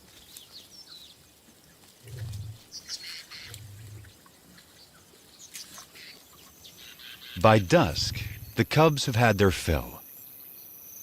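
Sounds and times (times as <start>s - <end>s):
small birds chirping: 0.1s - 11.0s
lioness growls: 2.0s - 2.7s, 3.4s - 4.2s.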